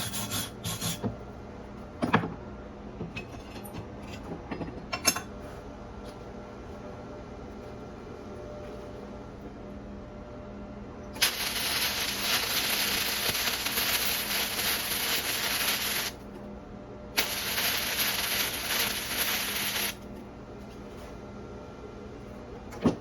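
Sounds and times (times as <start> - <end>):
welding arc crackling and hissing: 11.2 - 16.2, 17.2 - 20.0.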